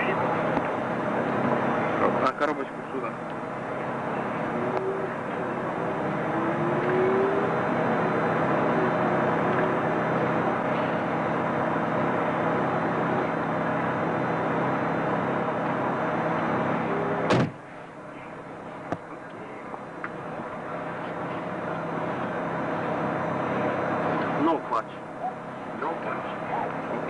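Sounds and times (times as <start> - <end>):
car engine idling: 0.0 - 27.0
car door slamming: 17.3 - 17.6.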